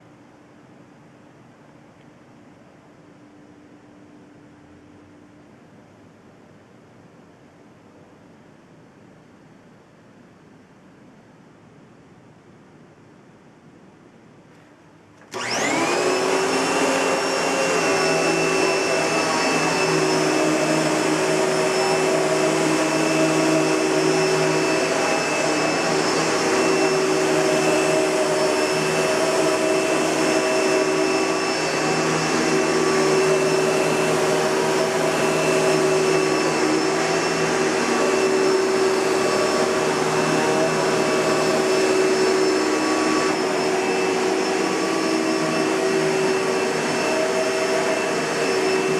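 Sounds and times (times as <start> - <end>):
vacuum cleaner motor whine: 15.2 - 48.9.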